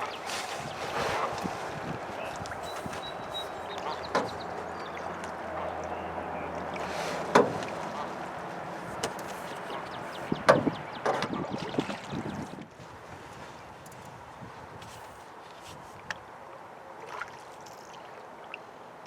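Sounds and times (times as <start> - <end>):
water: 0.0 - 19.0
wind: 0.0 - 19.0
paddle knocking on metal canoe: 10.3 - 11.5.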